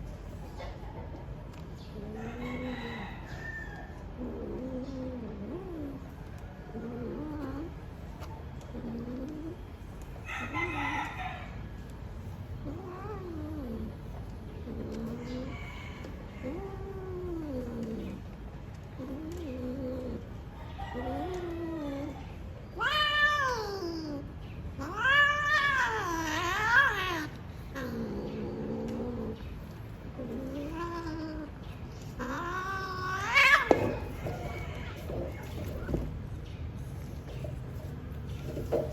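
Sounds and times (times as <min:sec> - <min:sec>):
cat yowling: 0:20.9 - 0:29.4, 0:30.2 - 0:36.0.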